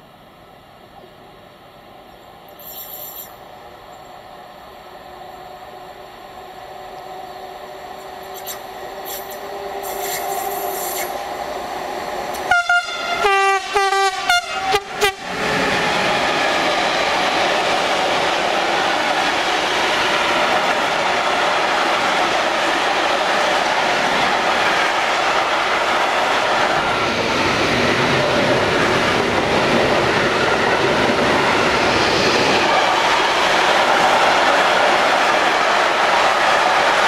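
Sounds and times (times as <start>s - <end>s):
train rolling noise: 0.0s - 37.0s
wheels rushing on rail: 0.0s - 37.0s
train horn short blasts: 12.4s - 15.3s.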